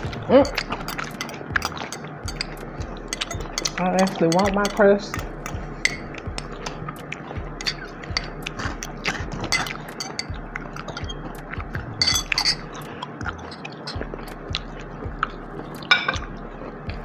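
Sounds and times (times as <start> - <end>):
person chewing food: 0.0 - 3.9, 12.3 - 15.4
cutlery clinking on dishes: 0.0 - 14.1, 15.9 - 16.3.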